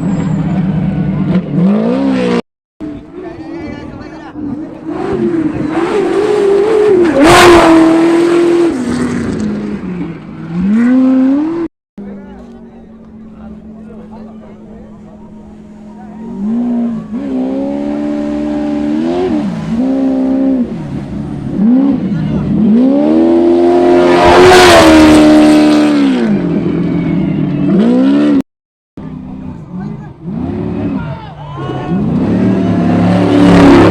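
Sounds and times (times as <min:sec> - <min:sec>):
race buggy engine passing: 0:00.0 - 0:28.4, 0:29.0 - 0:33.9
buggy engine revving past: 0:29.7 - 0:33.9.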